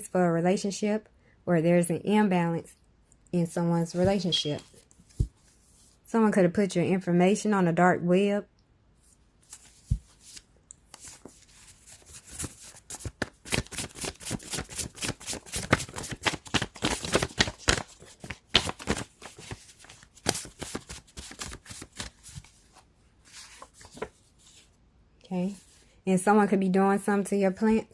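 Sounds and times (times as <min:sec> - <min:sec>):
cards being shuffled by hand: 0:09.4 - 0:24.7.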